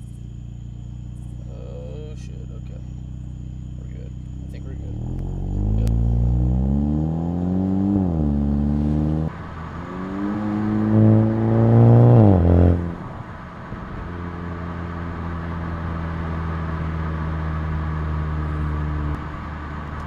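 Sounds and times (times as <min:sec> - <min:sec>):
car exhaust accelerating: 0:00.0 - 0:20.0.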